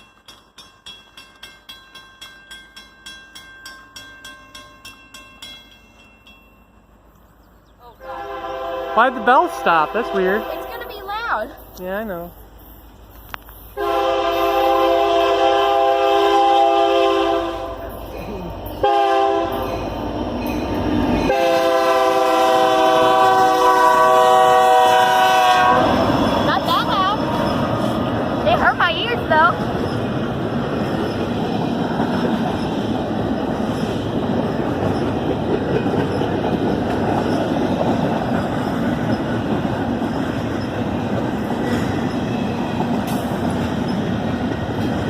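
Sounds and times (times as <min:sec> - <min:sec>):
railroad crossing bell ringing: 0:00.0 - 0:07.1, 0:17.6 - 0:22.3
locomotive air horn blasts: 0:08.0 - 0:10.9, 0:13.8 - 0:17.9, 0:18.8 - 0:19.7, 0:21.3 - 0:26.1.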